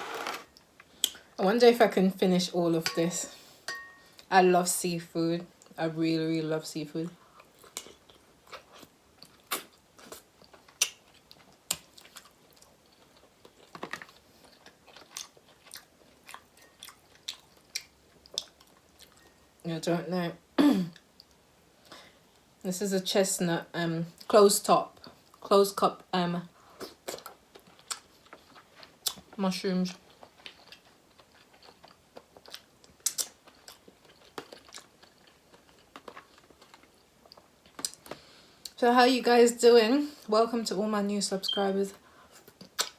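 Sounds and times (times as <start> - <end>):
soft wet mouth clicks: 42.6 - 42.9.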